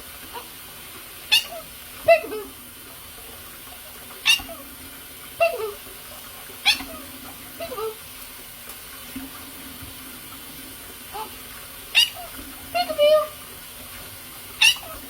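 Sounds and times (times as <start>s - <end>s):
parrot high-pitched calls: 1.3s - 2.6s, 4.2s - 4.7s, 5.4s - 5.8s, 6.6s - 8.0s, 11.9s - 13.4s, 14.6s - 15.0s.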